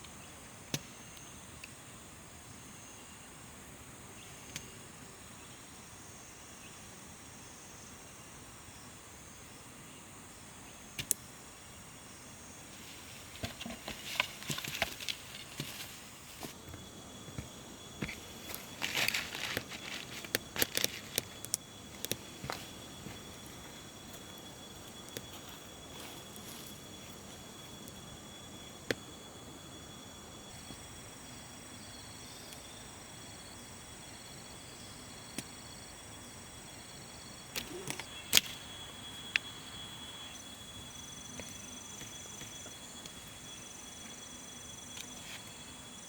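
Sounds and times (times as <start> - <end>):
crickets and insects chirring: 0.0 - 46.0
rustling in dry leaves and twigs: 12.6 - 27.9.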